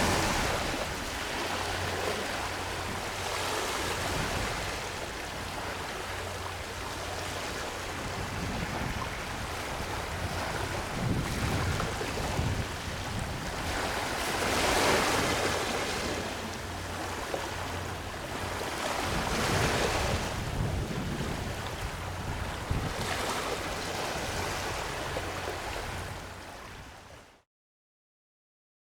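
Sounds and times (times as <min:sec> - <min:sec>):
small waves washing on beach: 0:00.0 - 0:27.2.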